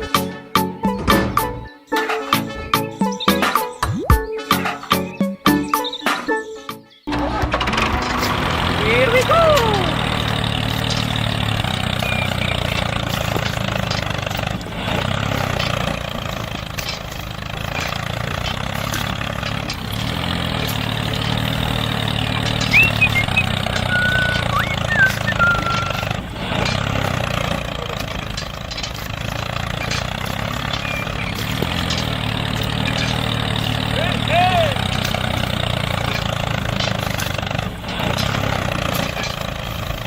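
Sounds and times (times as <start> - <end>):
diesel engine running: 0.0 - 1.7, 7.1 - 40.0.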